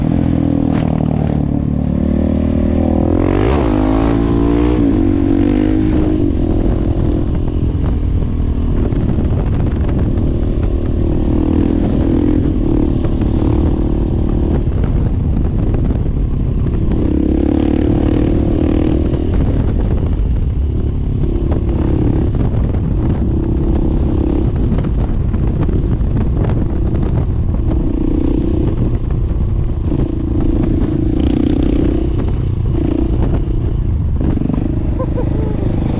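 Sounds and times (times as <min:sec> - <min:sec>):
motorcycle engine revving: 0:00.0 - 0:35.9
wind noise: 0:00.0 - 0:35.9.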